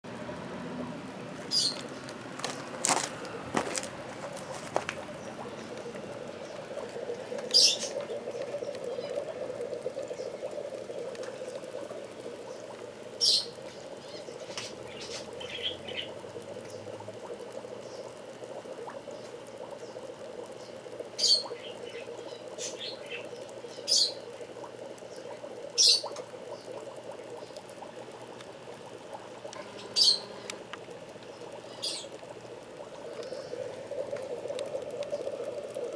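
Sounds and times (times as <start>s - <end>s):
steady low pump hum: 0.0s - 35.9s
cage birds chirping: 1.5s - 2.1s, 7.5s - 9.2s, 13.2s - 16.9s, 20.6s - 24.2s, 29.7s - 30.5s.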